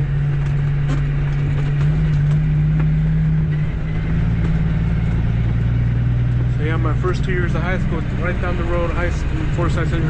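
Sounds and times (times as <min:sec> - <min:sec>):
diesel truck engine drone: 0:00.0 - 0:10.0.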